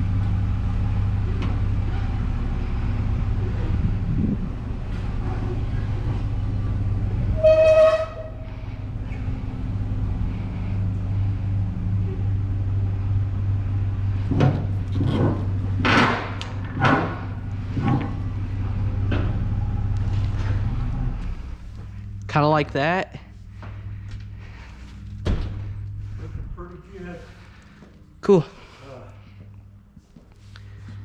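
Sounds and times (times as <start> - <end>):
vehicle engine droning: 0.0 - 31.0
high-pitched horn-like tone: 7.3 - 8.6.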